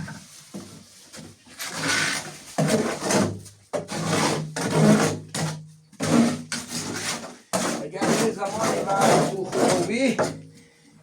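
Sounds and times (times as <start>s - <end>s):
trowel scraping wet cement: 1.6s - 10.2s.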